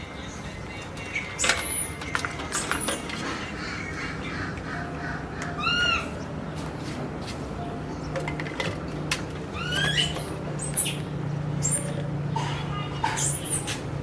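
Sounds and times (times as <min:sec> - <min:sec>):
chirping animal calls: 0:01.2 - 0:06.3, 0:09.5 - 0:13.9
animal squeaks: 0:01.4 - 0:06.2, 0:09.5 - 0:13.9.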